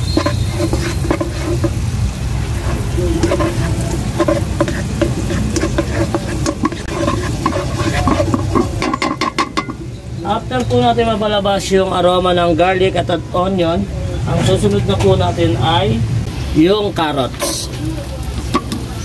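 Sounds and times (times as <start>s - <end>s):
spatula scraping a wok: 0.0s - 10.0s, 17.3s - 17.8s
garlic and onion sizzling: 0.0s - 13.1s, 16.3s - 19.0s.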